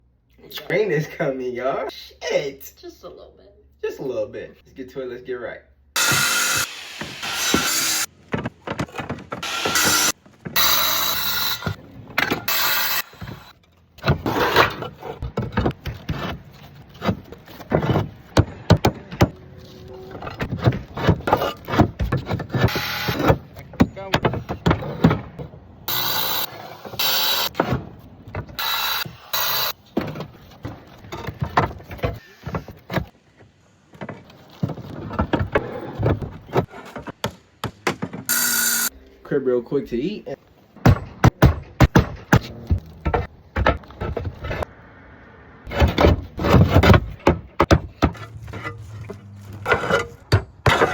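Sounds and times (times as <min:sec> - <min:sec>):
tiles scraping: 0:45.7 - 0:50.9.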